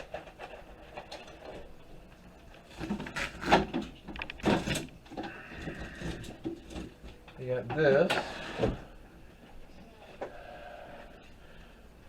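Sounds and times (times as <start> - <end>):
computer parts clicking and clattering: 4.1 - 5.0.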